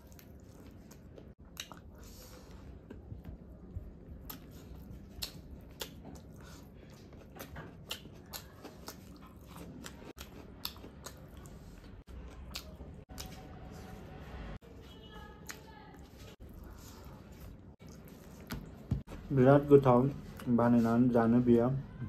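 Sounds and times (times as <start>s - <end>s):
person chewing food: 0.0s - 14.1s, 15.4s - 19.3s
wet mouth clicks and smacks: 1.4s - 1.9s, 5.1s - 6.2s.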